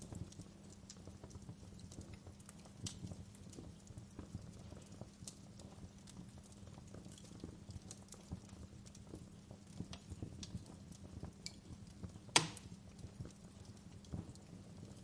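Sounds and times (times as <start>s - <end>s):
wood fire crackling: 0.0s - 15.0s
sharp loud pop: 12.4s - 12.6s.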